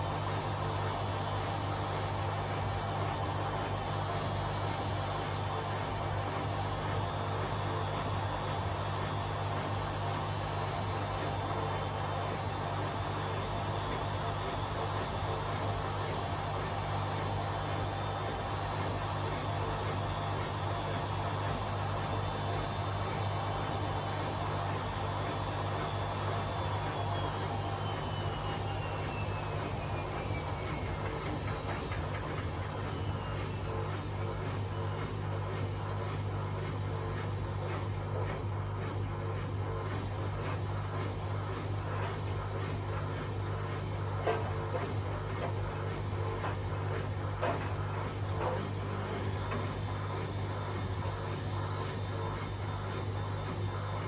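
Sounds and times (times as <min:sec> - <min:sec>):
washing machines spinning: 0:00.0 - 0:54.0.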